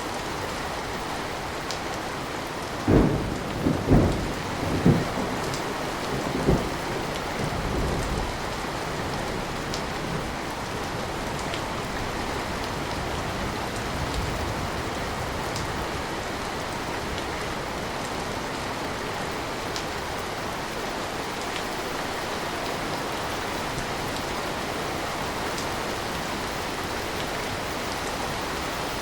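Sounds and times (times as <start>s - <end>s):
steady rain: 0.0s - 29.0s
thunder rumbling: 2.8s - 10.4s.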